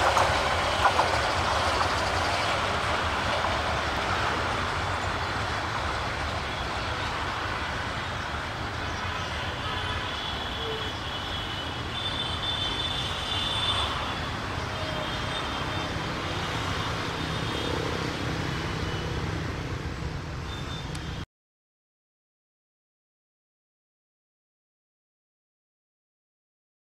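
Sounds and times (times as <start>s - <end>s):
train rumbling away: 0.0s - 21.0s
urban background noise: 0.0s - 21.3s.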